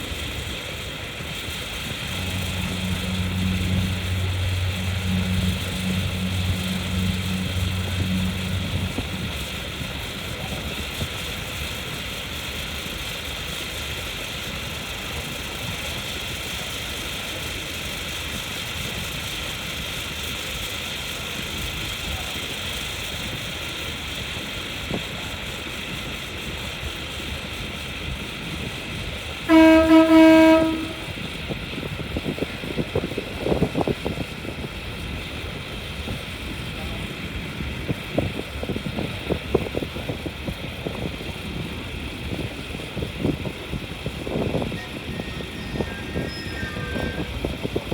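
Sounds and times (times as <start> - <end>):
ferry engine drone: 0.0 - 47.9
horn blast: 1.8 - 11.0, 29.5 - 31.2.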